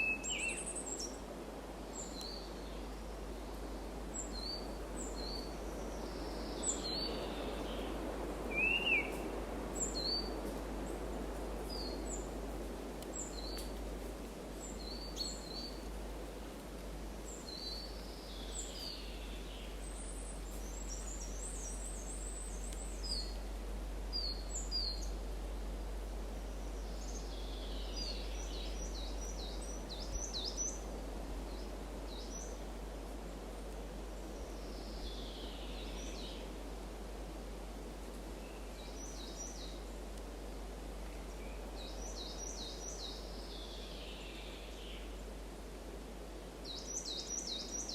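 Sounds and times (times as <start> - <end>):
steady background hiss: 0.0 - 47.9
wild birds chirping: 8.5 - 10.3, 46.6 - 47.9.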